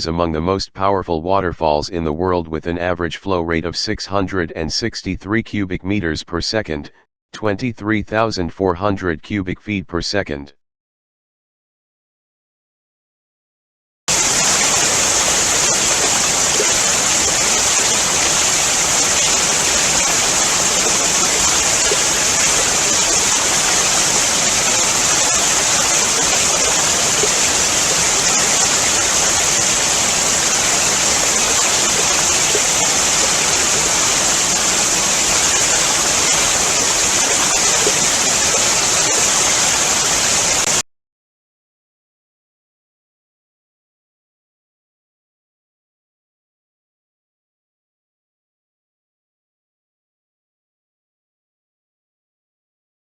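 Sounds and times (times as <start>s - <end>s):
waterfall rushing: 14.1s - 40.8s.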